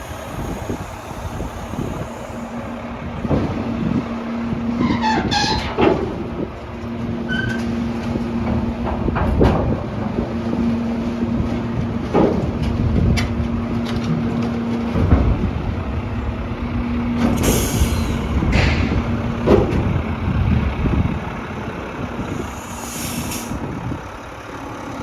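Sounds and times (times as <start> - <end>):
garbage truck humming: 0.0 - 25.0
falling squeal: 4.8 - 5.8, 7.3 - 7.6.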